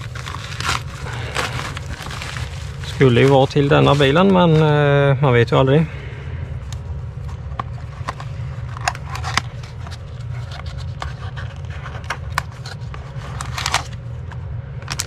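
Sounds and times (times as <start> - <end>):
plastic packaging crinkling: 0.0 - 4.8
steady low hum: 0.0 - 15.0.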